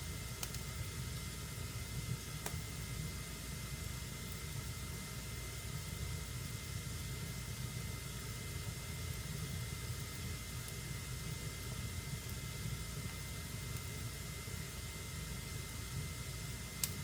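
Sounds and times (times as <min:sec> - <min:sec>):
fire flames rumbling and hissing: 0:00.0 - 0:17.0
fire crackling: 0:00.2 - 0:02.8.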